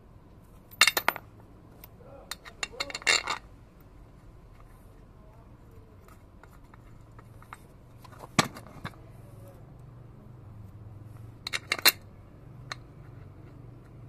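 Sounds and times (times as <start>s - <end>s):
faint low hum: 0.0s - 14.0s
metal tools clinking: 1.8s - 3.4s.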